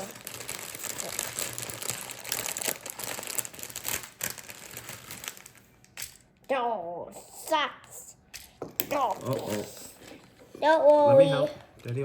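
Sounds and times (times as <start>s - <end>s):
plastic packaging crinkling: 0.0s - 6.5s, 8.9s - 10.1s.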